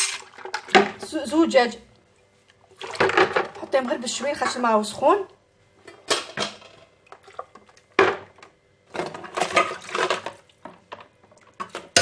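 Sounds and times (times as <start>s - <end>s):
water sloshing: 2.6s - 5.2s, 7.0s - 7.9s.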